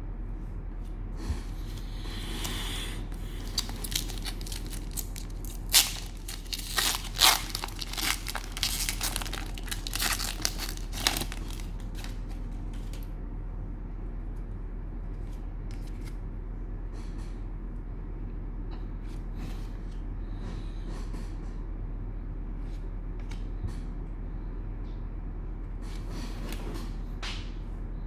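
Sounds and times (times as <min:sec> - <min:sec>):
cellophane wrapper ripping: 0:03.2 - 0:12.2
cellophane wrapper crackling: 0:03.2 - 0:13.0.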